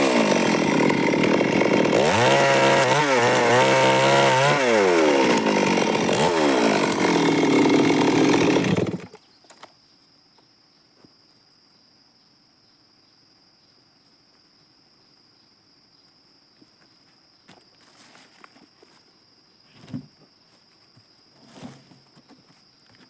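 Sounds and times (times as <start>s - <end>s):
chainsaw sawing wood: 0.0s - 9.2s.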